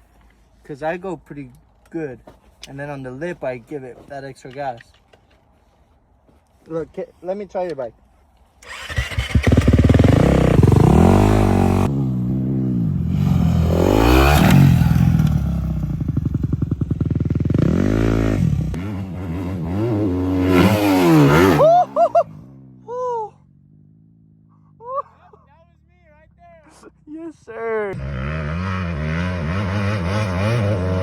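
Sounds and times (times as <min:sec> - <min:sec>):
dirt bike engine revving: 0:08.6 - 0:22.7, 0:28.0 - 0:31.0.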